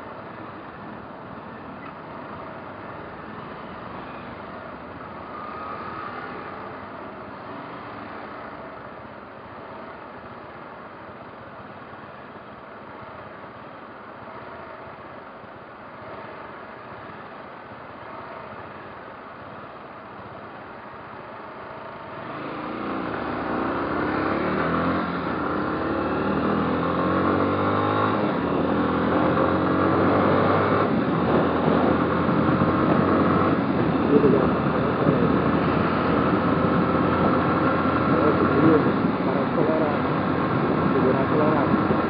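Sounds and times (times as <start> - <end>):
road and wind noise: 0.0 - 42.0
motorcycle engine: 20.3 - 42.0.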